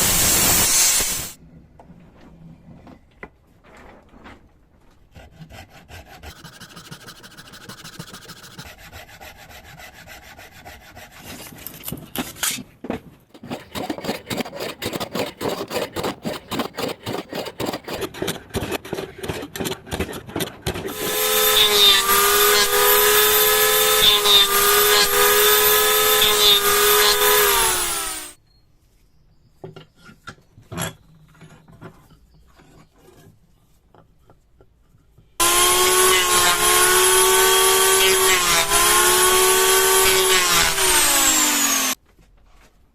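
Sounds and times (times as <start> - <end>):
electric power tool whining: 0.0 - 1.4, 13.3 - 18.0, 20.9 - 28.4, 35.4 - 42.0
hand rasping wood: 5.2 - 11.8, 13.3 - 28.3, 35.4 - 42.0.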